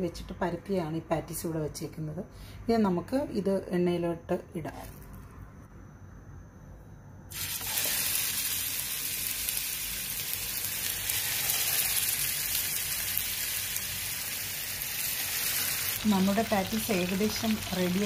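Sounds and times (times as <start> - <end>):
patty sizzling in hot oil: 7.3 - 18.0.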